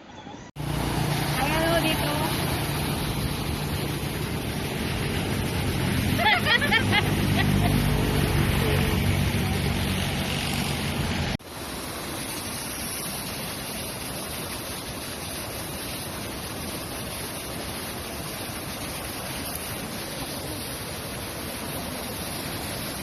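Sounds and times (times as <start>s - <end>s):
wind: 0.0s - 23.0s
boat engine running: 0.6s - 11.4s
surf rushing: 0.6s - 23.0s.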